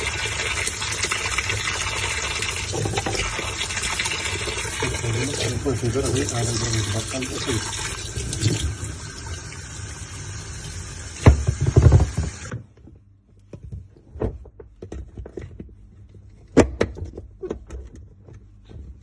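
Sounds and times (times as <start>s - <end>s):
water running in washing machine: 0.0s - 12.6s.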